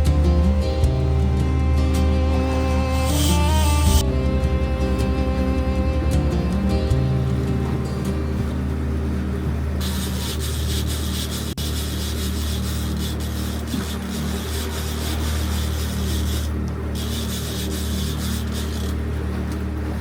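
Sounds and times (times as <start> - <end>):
boat engine humming: 0.0 - 20.0
rushing hiss of water or wind: 9.8 - 18.9.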